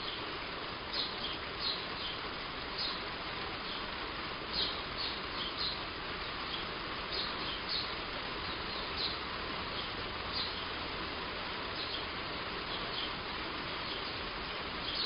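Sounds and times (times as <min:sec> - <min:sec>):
heavy rain on a roof: 0:00.0 - 0:15.0
bird chirping: 0:00.9 - 0:02.2, 0:02.8 - 0:03.0, 0:04.5 - 0:10.8, 0:11.7 - 0:15.0.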